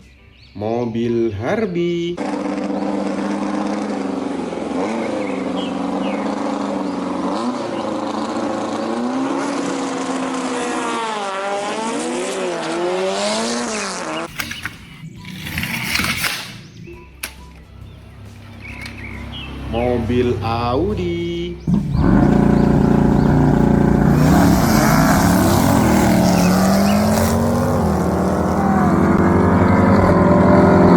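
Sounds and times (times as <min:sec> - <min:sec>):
car engine revving: 0:02.2 - 0:14.3, 0:21.6 - 0:30.9.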